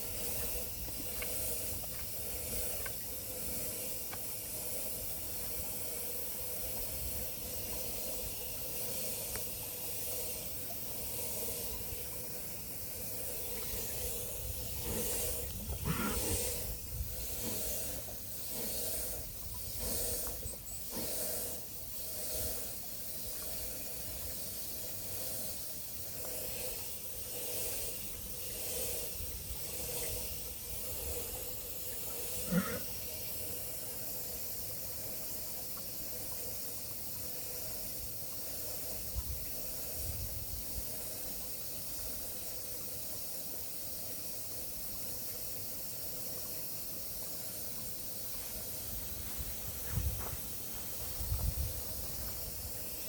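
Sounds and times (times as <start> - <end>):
outdoor hiss: 0.0 - 53.0
wind rumble on microphone: 13.6 - 18.1, 39.0 - 40.9, 48.9 - 52.9.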